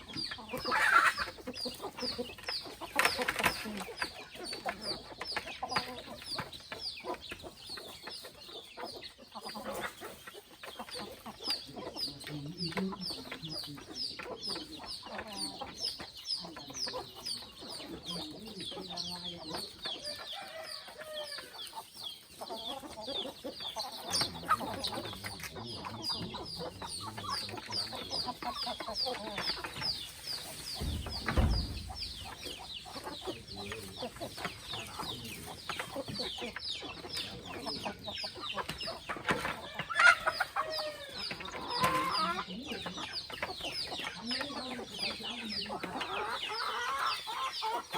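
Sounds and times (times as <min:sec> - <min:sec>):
chickens clucking: 0:00.0 - 0:47.9
low thud: 0:30.8 - 0:32.3.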